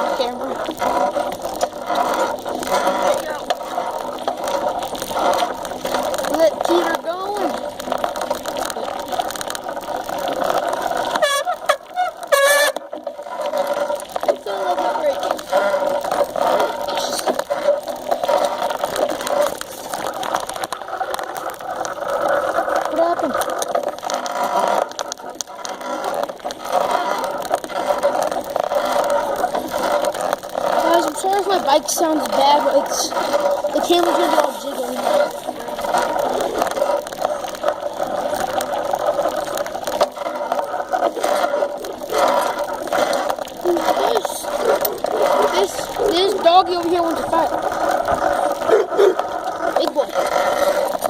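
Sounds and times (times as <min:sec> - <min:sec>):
bicycle rattling and scraping: 0:00.0 - 0:51.0
small knocks and clicks: 0:15.2 - 0:34.6.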